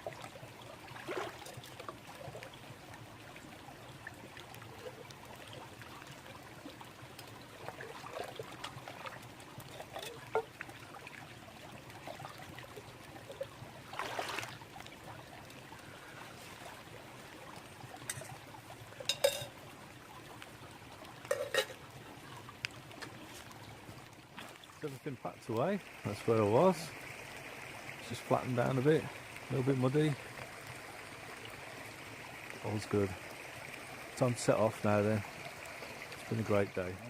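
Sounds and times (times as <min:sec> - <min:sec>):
babbling brook: 0:00.0 - 0:37.0
camping gear knocks and clatters: 0:21.3 - 0:21.8.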